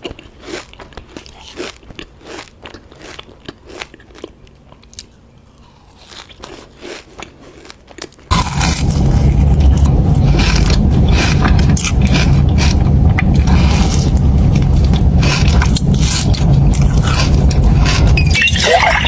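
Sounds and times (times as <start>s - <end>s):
biting and chewing cookie: 0.0s - 19.0s
dense crunching: 5.0s - 19.0s.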